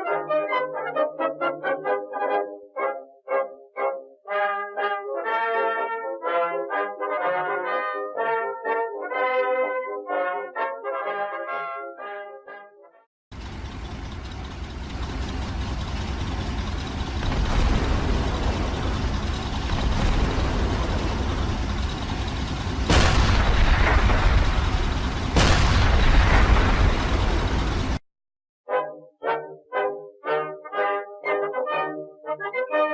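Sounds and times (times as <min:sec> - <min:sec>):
heavy steady rumble: 0:13.3 - 0:28.0
explosion blasts: 0:17.0 - 0:28.0.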